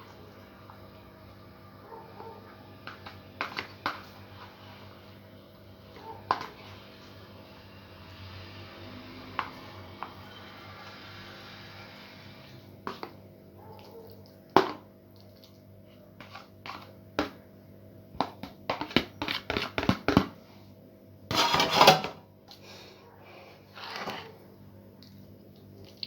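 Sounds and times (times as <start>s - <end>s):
rustling or scraping: 21.3s - 22.2s, 23.3s - 24.4s.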